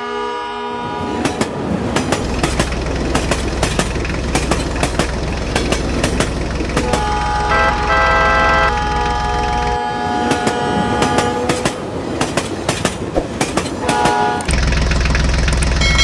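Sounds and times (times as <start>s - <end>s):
train horn: 0.0s - 1.3s, 6.8s - 12.0s, 13.8s - 14.5s
train wheels clacking on track: 1.1s - 16.0s.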